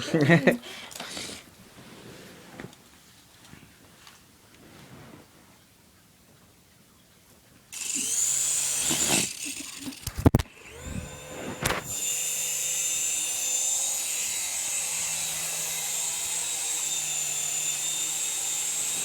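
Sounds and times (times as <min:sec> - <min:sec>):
rc helicopter motor whine: 0:07.8 - 0:19.0.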